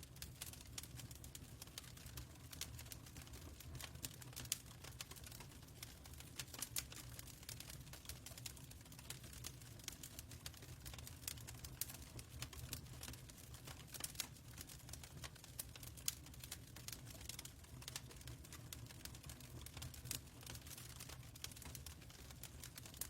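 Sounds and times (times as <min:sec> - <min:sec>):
fireplace fire crackling: 0:00.0 - 0:23.0.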